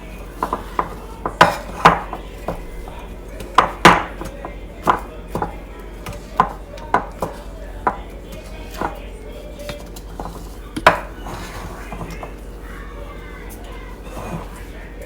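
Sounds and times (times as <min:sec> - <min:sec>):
utensil knocking against mixing bowl: 0:00.3 - 0:12.4.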